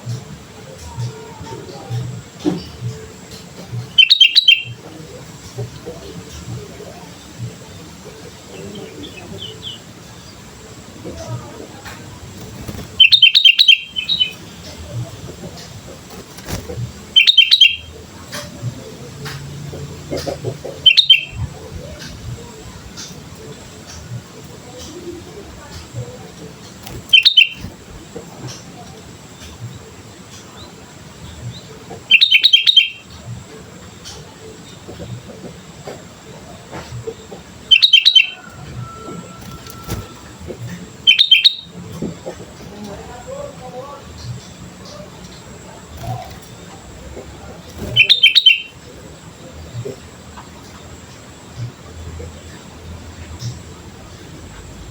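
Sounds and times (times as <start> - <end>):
bird chirping: 3.8 - 4.8, 12.1 - 18.0, 20.0 - 24.2, 26.7 - 27.8, 31.4 - 33.3, 37.0 - 42.7, 44.1 - 48.9.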